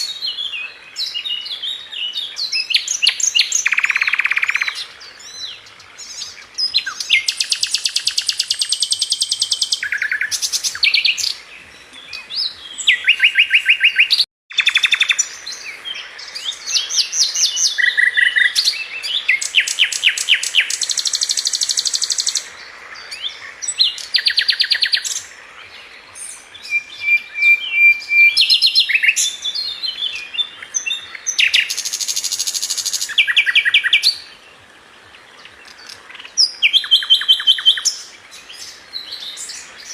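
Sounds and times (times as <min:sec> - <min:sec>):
bird singing rapid trills: 0:00.0 - 0:11.4.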